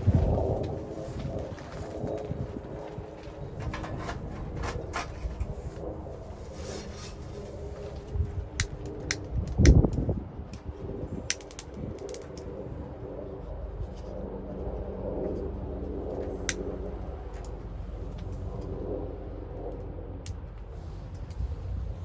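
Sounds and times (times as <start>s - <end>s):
wood fire crackling: 11.2s - 12.4s.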